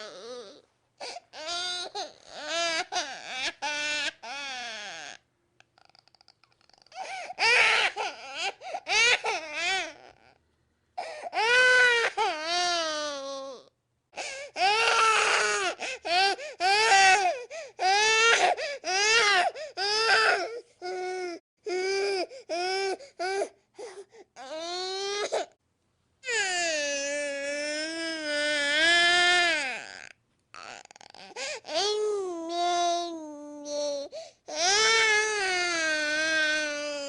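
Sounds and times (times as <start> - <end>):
baby crying: 0.0 - 5.2, 6.7 - 10.4, 11.0 - 23.6, 26.2 - 37.0
baby gasping for breath: 14.2 - 14.5, 31.3 - 31.7.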